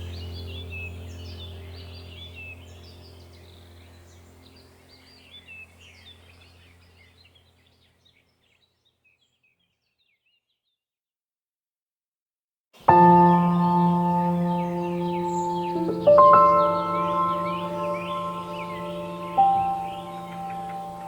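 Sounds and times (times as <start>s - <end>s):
small birds chirping: 0.0s - 10.8s, 12.8s - 21.0s
low steady drone: 12.9s - 21.0s.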